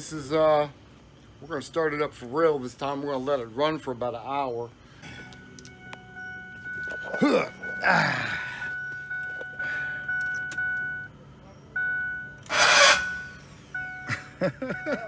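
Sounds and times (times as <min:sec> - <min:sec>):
high chime tone: 0:05.4 - 0:11.1.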